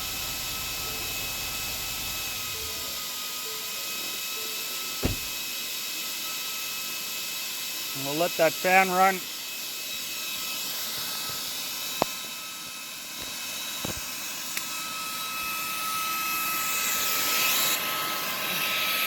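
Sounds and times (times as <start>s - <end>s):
compressor cooling fan whine: 0.0s - 5.5s.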